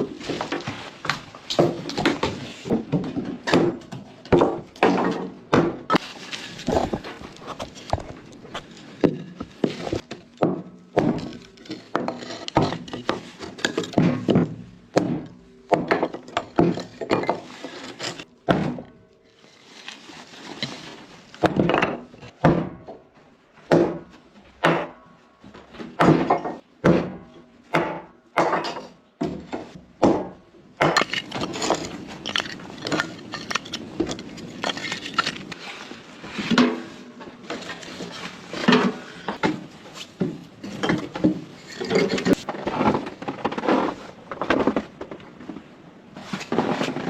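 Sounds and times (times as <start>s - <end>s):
wooden thuds and knocks: 0.0s - 19.0s, 21.4s - 35.5s, 36.3s - 45.6s
rustling: 5.9s - 10.4s, 19.3s - 21.5s, 31.0s - 47.0s.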